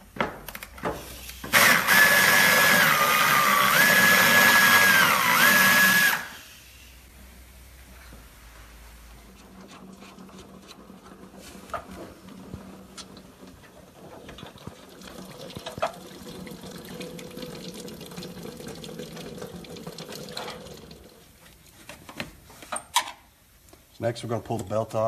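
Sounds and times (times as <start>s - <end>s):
liquid streaming into a pan: 13.6s - 21.4s.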